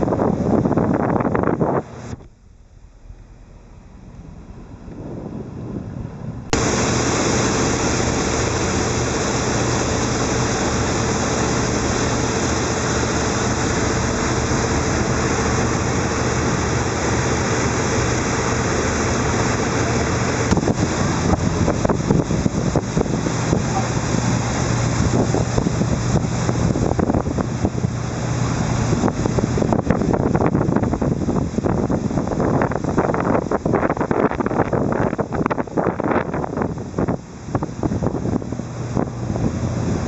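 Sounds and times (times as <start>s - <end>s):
boat engine hum: 0.0s - 40.0s
rushing water: 0.0s - 40.0s
wind buffeting microphone: 0.0s - 40.0s.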